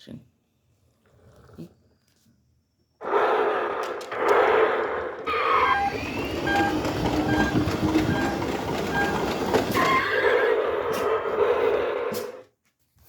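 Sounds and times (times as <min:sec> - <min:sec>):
toy truck motors whirring: 0:05.2 - 0:12.4.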